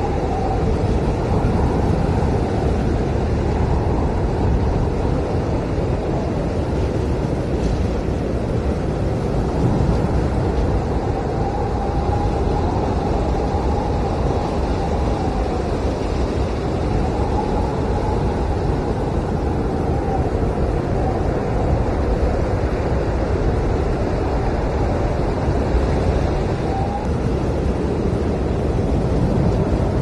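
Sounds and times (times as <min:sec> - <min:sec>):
blizzard wind howling: 0:00.0 - 0:30.0.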